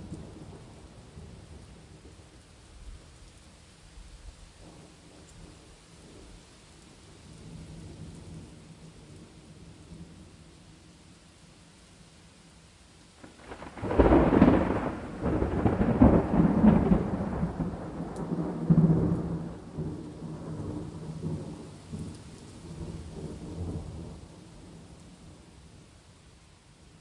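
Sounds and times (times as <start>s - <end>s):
steady rain: 0.0s - 27.0s
thunder crack and rumble: 13.2s - 24.8s.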